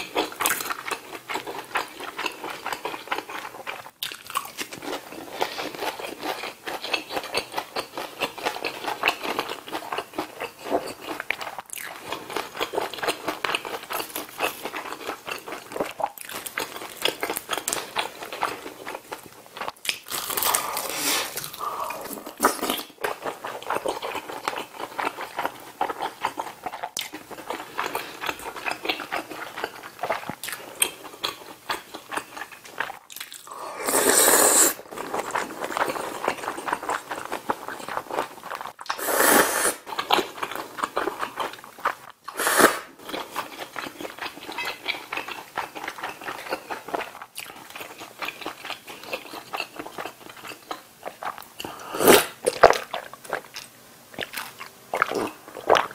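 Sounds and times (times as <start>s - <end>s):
wet chewing with mouth clicks: 0.0s - 33.6s, 39.9s - 55.9s
loud slurp of noodles: 20.6s - 22.8s, 33.5s - 34.9s, 38.9s - 39.8s, 42.3s - 43.0s, 51.8s - 52.4s.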